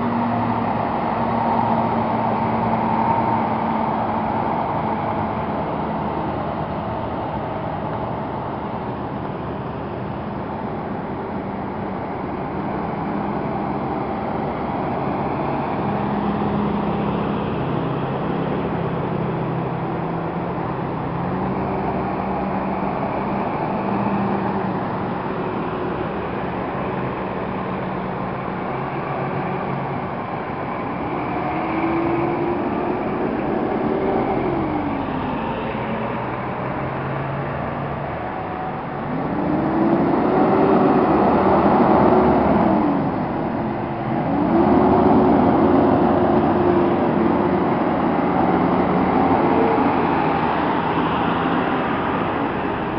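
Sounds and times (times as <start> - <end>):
diesel truck engines passing: 0.0 - 52.9
road noise: 0.0 - 52.9.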